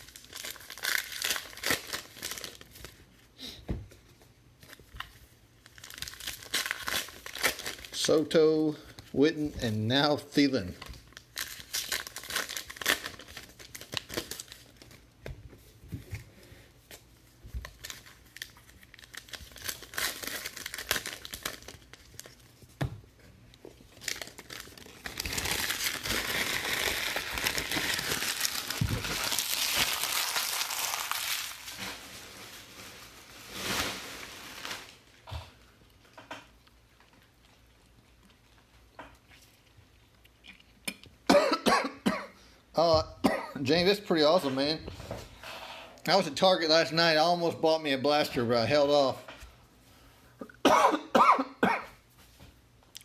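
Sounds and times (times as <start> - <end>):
plastic wrappers crinkling and tearing: 0.0 - 3.2, 4.6 - 9.2, 10.4 - 15.2, 16.9 - 22.7, 23.6 - 35.3.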